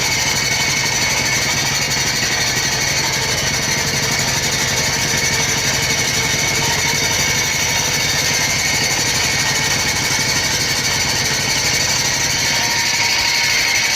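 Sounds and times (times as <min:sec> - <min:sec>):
grinding machine whining: 0:00.0 - 0:13.9.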